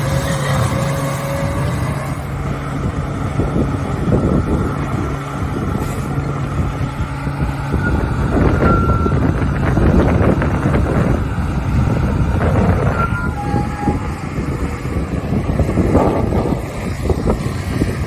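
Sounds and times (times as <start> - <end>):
heavy machinery engine rumbling: 0.0 - 18.0
short high squeals: 12.8 - 14.2.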